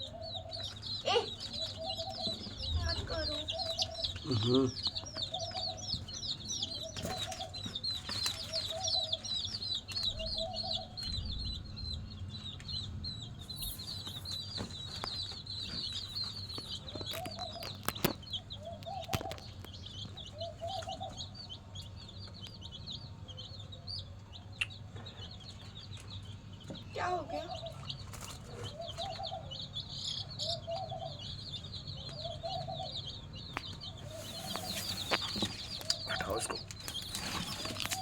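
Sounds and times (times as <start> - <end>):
chicks peeping: 0.0 - 38.0
hen clucking: 33.6 - 38.0.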